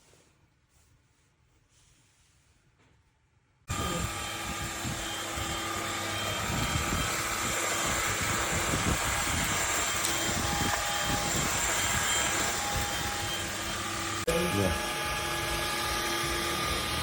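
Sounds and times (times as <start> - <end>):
vacuum cleaner running: 3.7 - 17.0.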